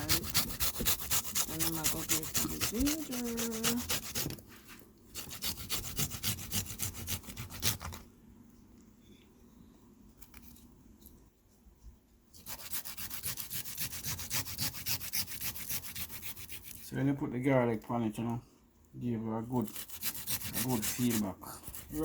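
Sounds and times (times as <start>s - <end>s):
food rasping on hand grater: 0.0s - 4.4s, 5.2s - 7.9s, 12.4s - 16.9s, 19.6s - 22.0s.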